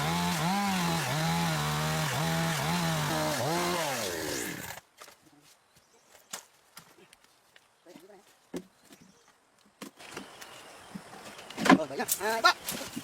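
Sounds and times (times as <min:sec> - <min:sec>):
chainsaw cutting wood: 0:00.0 - 0:04.8.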